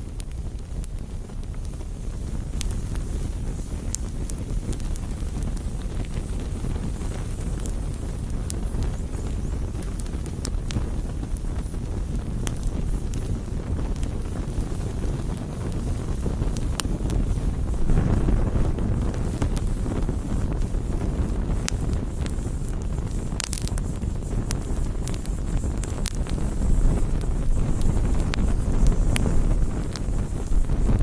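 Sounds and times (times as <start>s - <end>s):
campfire crackling and popping: 0.0s - 31.0s.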